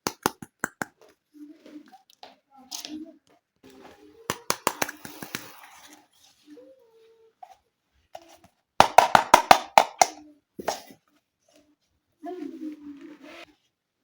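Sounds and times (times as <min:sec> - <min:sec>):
plastic toy pieces clicking: 0:04.3 - 0:05.5.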